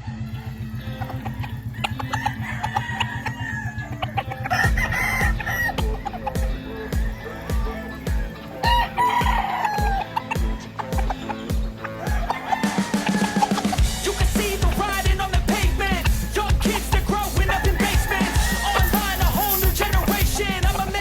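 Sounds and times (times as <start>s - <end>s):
chickens clucking: 0.0s - 21.0s
music with steady beat: 0.0s - 21.0s
roosters crowing: 0.2s - 21.0s
heavy kick drum: 4.6s - 12.3s, 13.8s - 21.0s.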